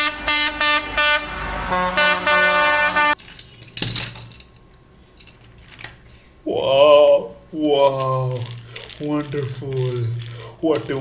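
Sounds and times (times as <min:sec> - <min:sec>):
electronic horn toots: 0:00.0 - 0:03.2.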